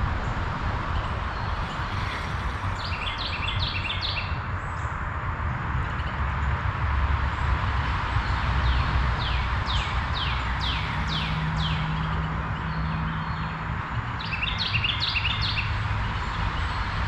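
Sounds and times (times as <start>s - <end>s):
songbird singing: 1.0s - 4.9s, 8.7s - 16.9s.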